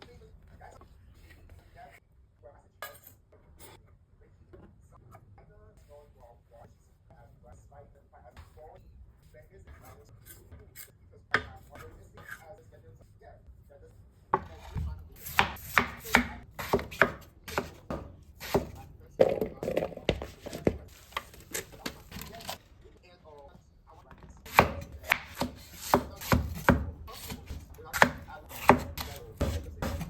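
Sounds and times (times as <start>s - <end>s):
knife chopping on cutting board: 14.4s - 22.6s, 24.4s - 30.0s.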